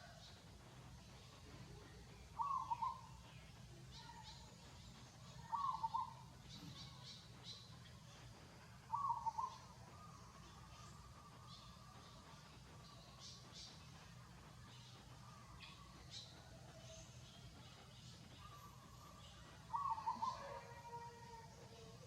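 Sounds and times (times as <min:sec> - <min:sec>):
bird calling: 0:02.4 - 0:03.1, 0:05.4 - 0:06.2, 0:08.9 - 0:11.0, 0:18.4 - 0:21.0.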